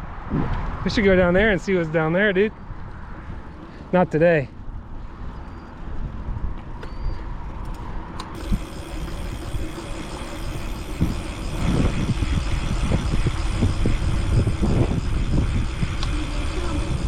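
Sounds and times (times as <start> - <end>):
wind rumble on microphone: 0.0 - 1.6, 10.6 - 17.0.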